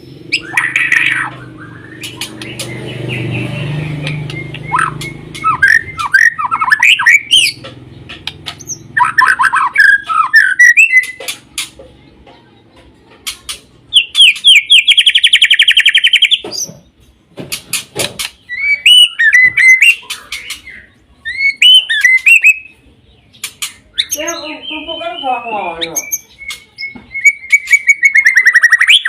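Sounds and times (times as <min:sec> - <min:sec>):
songbird whistling: 0:00.0 - 0:07.6, 0:08.2 - 0:11.2, 0:13.9 - 0:16.4, 0:18.4 - 0:22.8, 0:23.9 - 0:29.0
fast bird trill: 0:00.0 - 0:11.8, 0:13.3 - 0:16.7, 0:17.8 - 0:22.8, 0:23.4 - 0:29.0
sharp clicks: 0:00.4 - 0:03.2, 0:04.0 - 0:09.4, 0:10.8 - 0:11.9.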